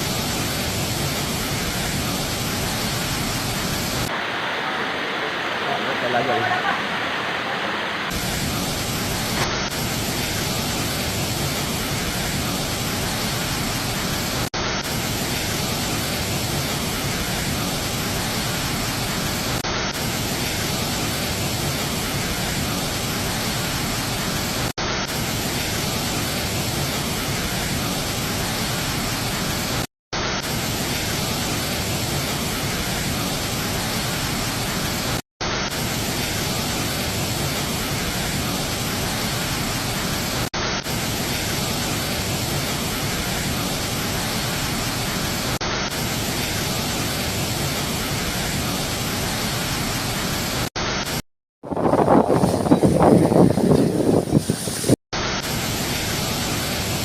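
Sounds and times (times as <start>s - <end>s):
waterfall roaring: 0.0s - 51.2s, 51.8s - 57.0s.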